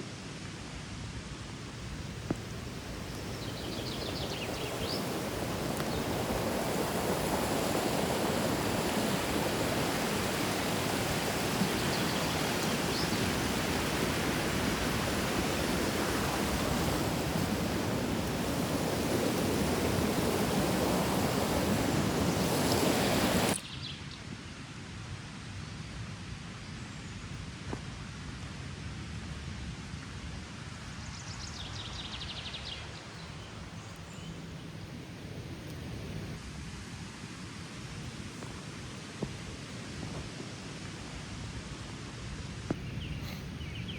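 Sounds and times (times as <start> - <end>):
background hiss: 0.0 - 24.1, 30.9 - 43.9
river water rushing: 1.5 - 23.6, 42.7 - 43.9.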